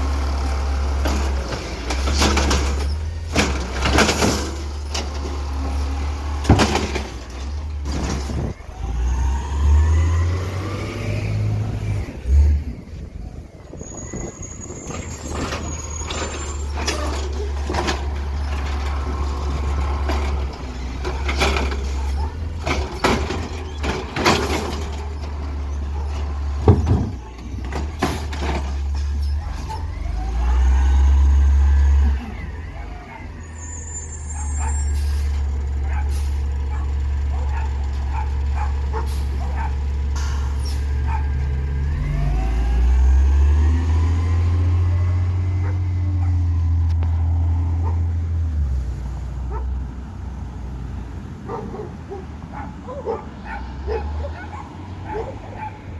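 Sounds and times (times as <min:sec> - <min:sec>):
garbage truck engine running: 0:00.0 - 0:50.7
metallic clanks and bangs: 0:01.0 - 0:08.6, 0:14.9 - 0:29.9.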